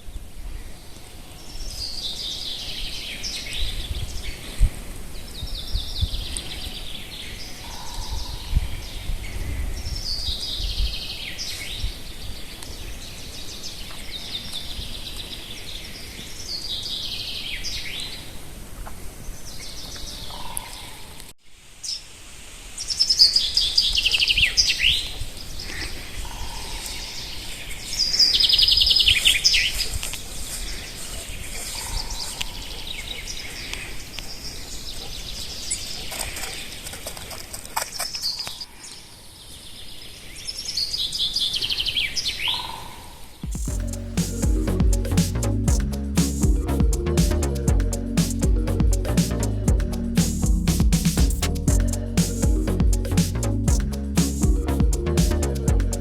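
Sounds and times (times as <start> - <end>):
songbird singing: 0.0 - 18.4, 38.1 - 56.0
wind rumble on microphone: 2.8 - 7.0, 7.7 - 12.4.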